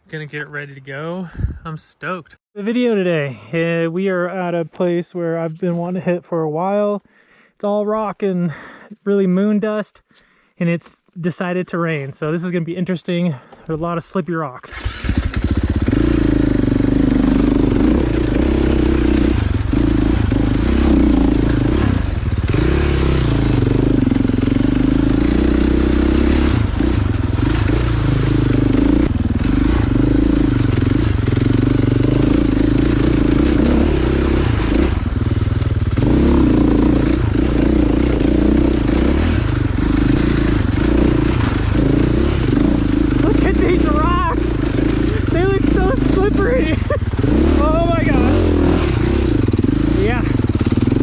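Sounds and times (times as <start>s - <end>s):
dirt bike engine revving: 14.7s - 51.0s.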